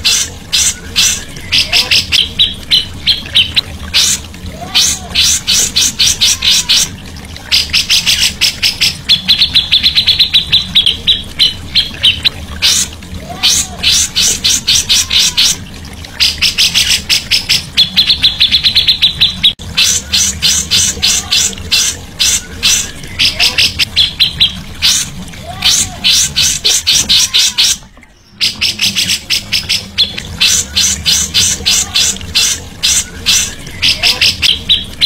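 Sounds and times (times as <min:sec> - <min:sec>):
songbird chattering: 0:00.0 - 0:06.9, 0:16.2 - 0:35.0.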